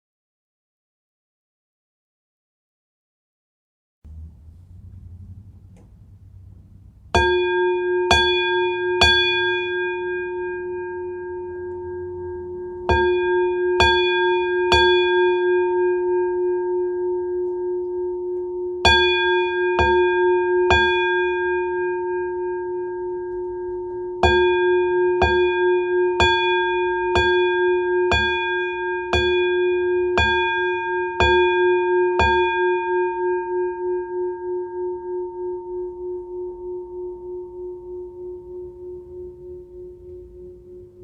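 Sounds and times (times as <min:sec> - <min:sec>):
bell struck and ringing: 0:07.2 - 0:41.0.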